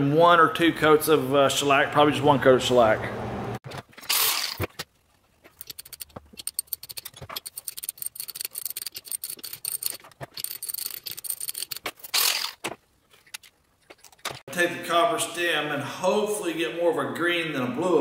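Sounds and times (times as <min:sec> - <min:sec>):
quick rattling clicks: 0:05.6 - 0:12.6.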